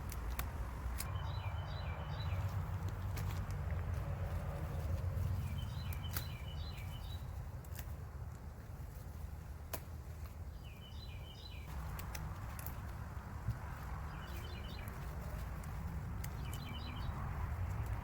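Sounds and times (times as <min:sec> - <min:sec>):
songbird chirping: 0:00.0 - 0:08.1, 0:08.9 - 0:18.0.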